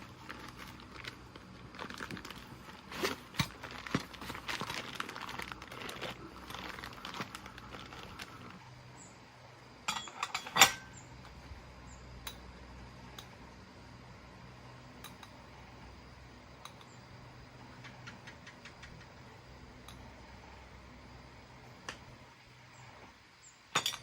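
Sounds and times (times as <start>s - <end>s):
metal tools clinking: 9.9s - 11.0s, 23.7s - 24.0s.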